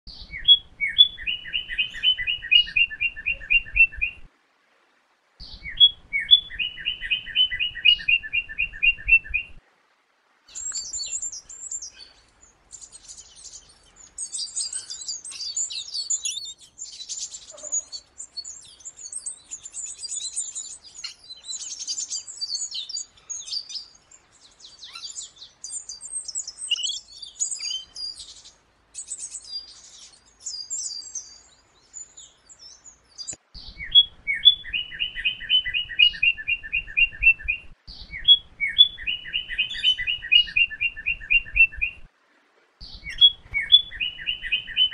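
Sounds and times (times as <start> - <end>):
bird song rapid repeated notes: 0.1 - 4.2, 5.4 - 9.6, 10.5 - 42.1, 42.8 - 44.9
high-pitched bird twittering: 0.1 - 4.2, 24.7 - 42.0, 42.8 - 44.9.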